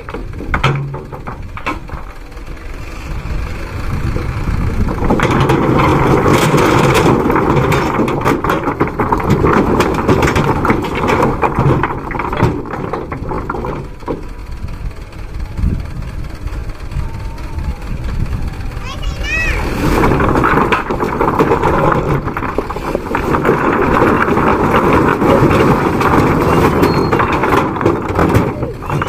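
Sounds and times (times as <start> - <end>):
stones clattering out of truck: 0.0 - 2.2, 4.8 - 14.4, 19.7 - 29.0
truck engine running: 0.0 - 29.0.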